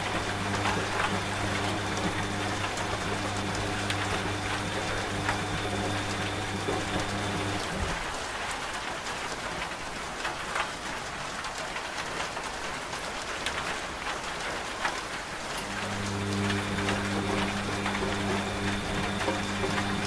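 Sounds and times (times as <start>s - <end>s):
washing machine hum: 0.0s - 8.5s, 15.3s - 20.0s
rain drop ticks: 0.0s - 20.0s
rain falling: 0.0s - 20.0s.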